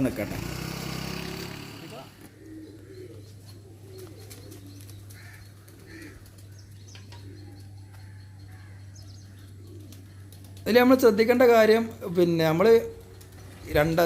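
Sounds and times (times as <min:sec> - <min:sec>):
pigeons cooing: 0:01.8 - 0:14.0
bird chirps: 0:02.3 - 0:10.6.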